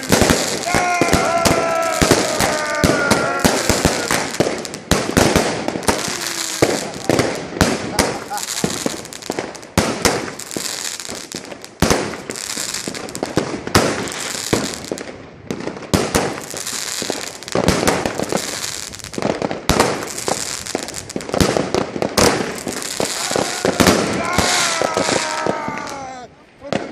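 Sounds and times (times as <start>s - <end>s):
crackling fizz of firecrackers: 0.0s - 26.9s
fireworks bangs: 0.0s - 26.9s.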